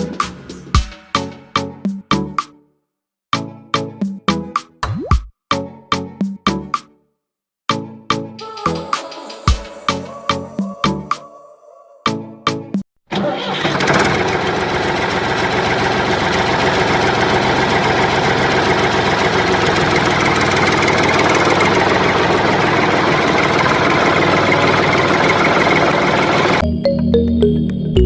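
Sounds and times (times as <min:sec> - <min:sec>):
motor running with rattle: 0:13.6 - 0:26.6.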